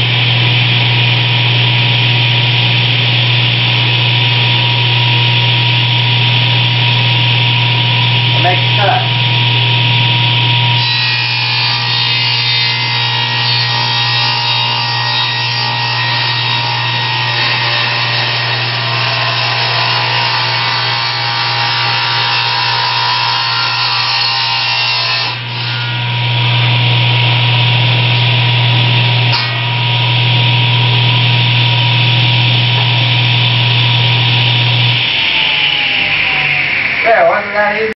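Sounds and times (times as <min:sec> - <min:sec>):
table saw motor hum: 0:00.0 - 0:37.8
saw blade noise: 0:00.0 - 0:37.9
saw winding down whine: 0:00.0 - 0:37.9.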